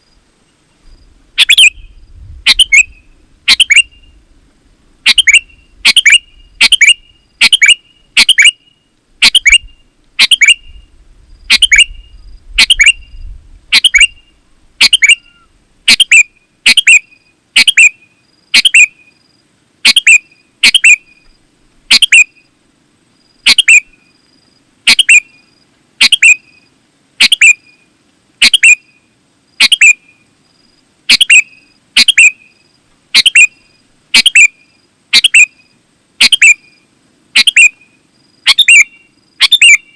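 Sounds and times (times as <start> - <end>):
bird chirping calls: 1.4 - 4.2, 5.0 - 19.2, 19.8 - 21.3, 21.9 - 22.5, 23.4 - 24.1, 24.9 - 30.3, 31.1 - 36.8, 37.4 - 39.9.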